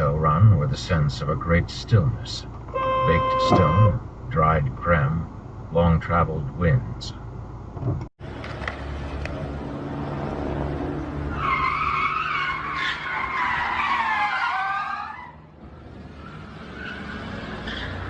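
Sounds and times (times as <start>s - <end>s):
car tyres squealing: 2.7s - 4.0s, 11.1s - 18.0s.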